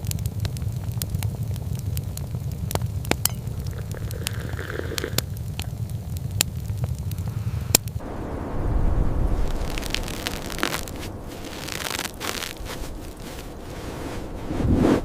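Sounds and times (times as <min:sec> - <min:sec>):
wood fire crackling and popping: 0:00.0 - 0:14.5
low rumble: 0:05.3 - 0:15.0.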